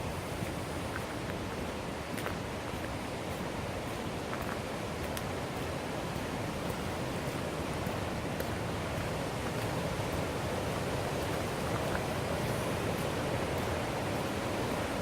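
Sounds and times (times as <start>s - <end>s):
river water rushing over rapids: 0.0s - 15.0s.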